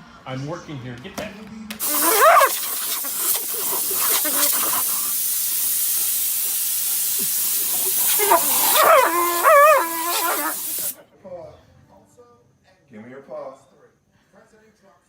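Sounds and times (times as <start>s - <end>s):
dog whining: 1.8s - 5.2s, 7.2s - 11.0s
steady hiss: 1.8s - 11.0s.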